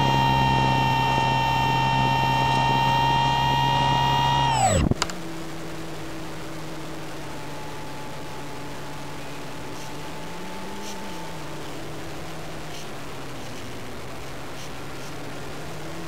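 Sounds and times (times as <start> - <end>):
motor spinning down: 0.0 - 11.8
electric motor and propeller whine: 0.0 - 16.0
click: 4.7 - 5.2.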